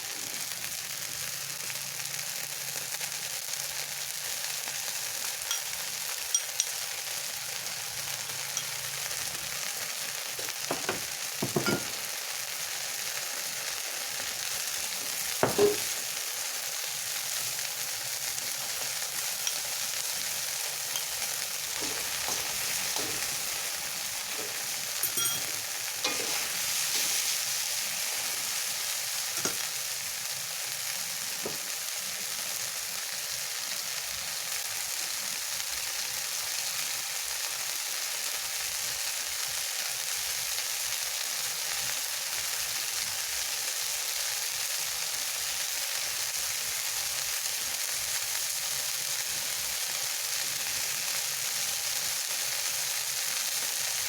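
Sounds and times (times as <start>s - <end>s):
food sizzling in a pan: 0.0s - 54.0s
utensil knocking on pan: 10.4s - 12.0s, 15.4s - 16.1s, 21.8s - 23.6s, 24.3s - 26.4s, 29.4s - 29.6s.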